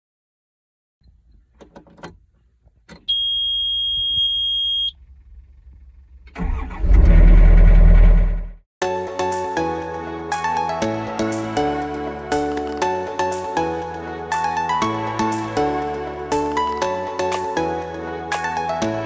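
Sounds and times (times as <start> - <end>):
high electronic beep: 3.1 - 4.9
excavator diesel engine starting: 5.0 - 8.5.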